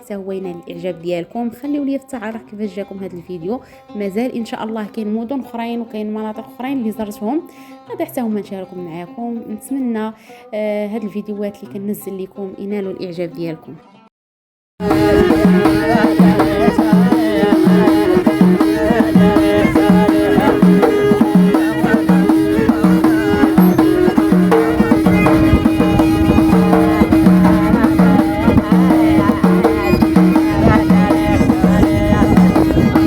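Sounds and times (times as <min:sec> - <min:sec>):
bowed violin melody with drone: 0:14.8 - 0:33.0
frame drum beat: 0:14.8 - 0:33.0.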